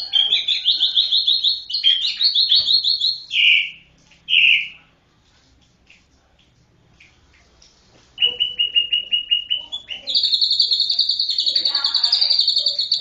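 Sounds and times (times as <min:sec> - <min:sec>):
bird singing high trill: 0:00.0 - 0:04.8, 0:08.2 - 0:13.0.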